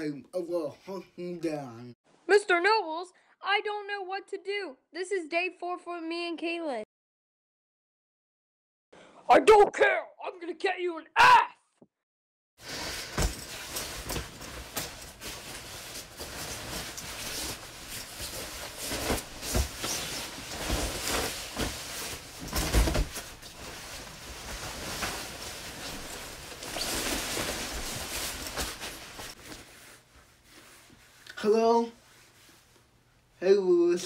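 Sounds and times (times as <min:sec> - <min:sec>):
clothing rustling: 0:12.6 - 0:33.0.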